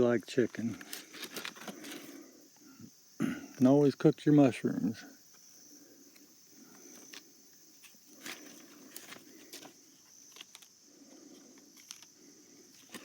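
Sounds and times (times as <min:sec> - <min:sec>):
steady high hiss: 0:00.0 - 0:13.0
faint clicks and rustles: 0:00.4 - 0:02.6, 0:05.3 - 0:13.0.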